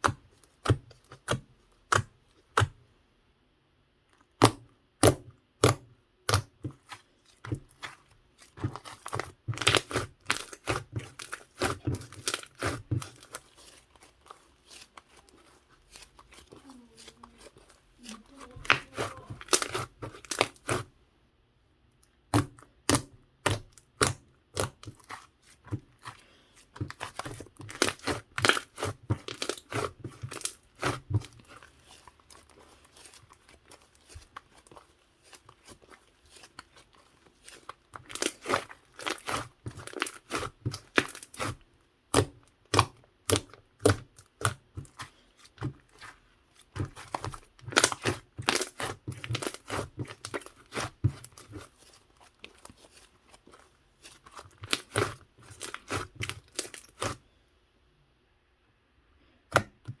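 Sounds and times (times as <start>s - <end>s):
slime clicking and popping: 22.0s - 25.2s, 37.4s - 46.1s, 46.7s - 51.6s.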